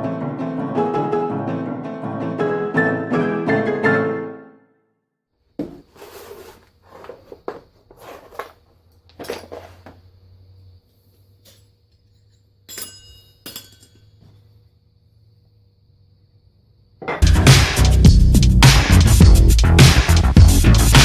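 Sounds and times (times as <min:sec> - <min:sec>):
faint steady hum: 0:05.4 - 0:17.2
hard objects clinking and knocking: 0:07.0 - 0:10.0, 0:11.5 - 0:14.4.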